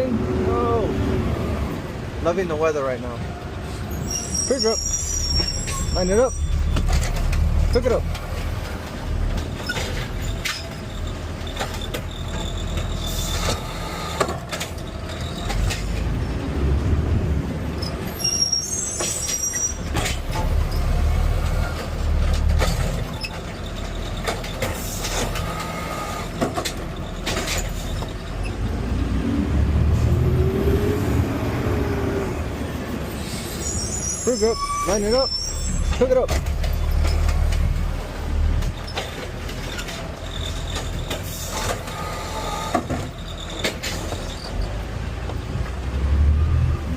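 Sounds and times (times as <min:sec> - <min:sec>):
high squeal: 0:03.8 - 0:07.2, 0:09.6 - 0:14.2, 0:17.8 - 0:21.8, 0:32.8 - 0:37.4, 0:39.6 - 0:44.8
truck engine revving: 0:24.8 - 0:32.9.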